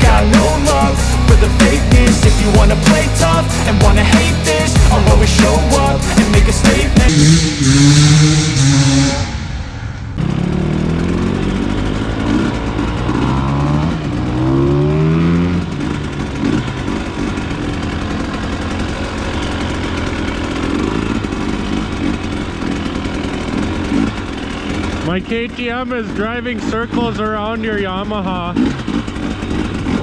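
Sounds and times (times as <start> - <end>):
rap song: 0.0 - 9.6
dirt bike engine revving: 0.0 - 25.2.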